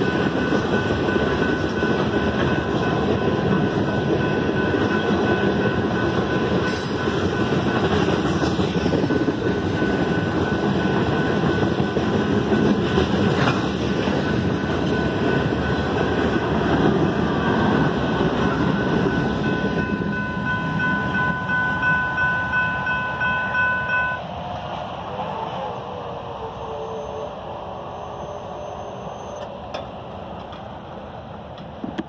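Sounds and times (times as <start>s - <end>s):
train wheels clattering: 0.0s - 22.7s
crossing bell ringing: 0.0s - 24.4s
freight train rumbling past: 0.0s - 32.0s.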